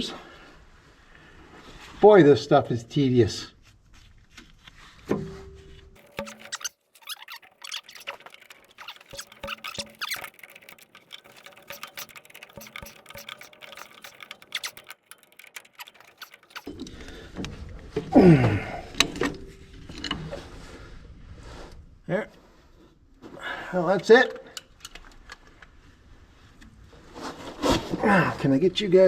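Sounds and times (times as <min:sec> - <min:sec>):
metal clicks of hand tools: 0:06.0 - 0:16.9.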